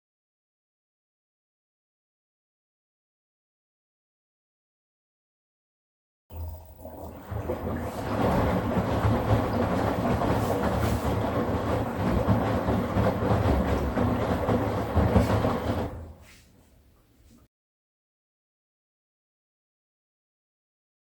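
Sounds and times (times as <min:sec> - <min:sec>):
washing machine spinning and rattling: 0:06.4 - 0:16.7.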